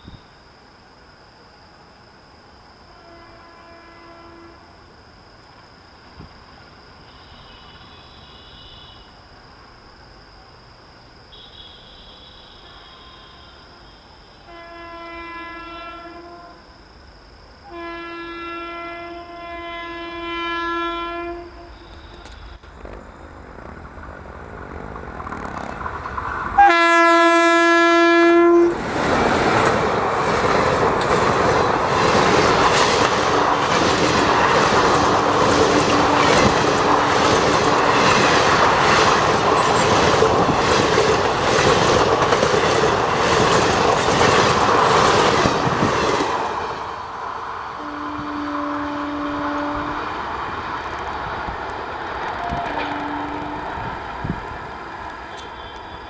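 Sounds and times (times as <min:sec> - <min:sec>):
locomotive horn blasts: 0:02.9 - 0:04.7, 0:07.1 - 0:09.1, 0:11.3 - 0:16.7, 0:17.6 - 0:22.6, 0:26.6 - 0:28.8, 0:47.8 - 0:50.2, 0:52.4 - 0:54.0, 0:55.3 - 0:56.0
train wheels clattering over rail joints: 0:29.2 - 0:46.5.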